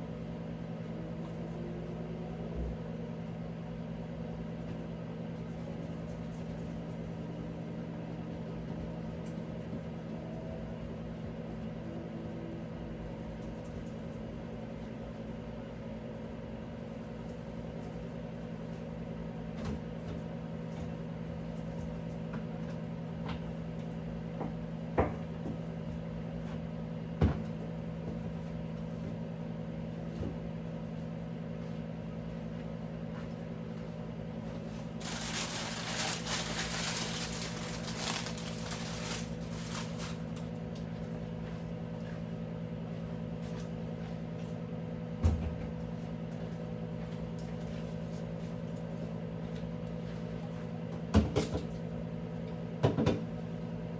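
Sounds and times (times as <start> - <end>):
steady appliance hum: 0.0 - 53.9.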